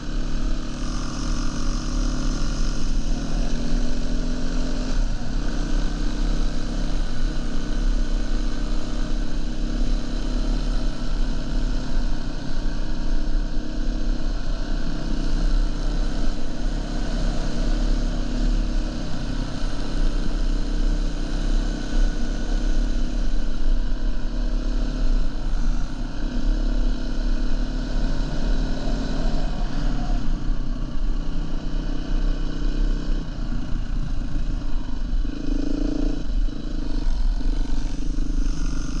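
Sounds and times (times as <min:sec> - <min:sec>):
dirt bike engine running: 0:00.0 - 0:39.0.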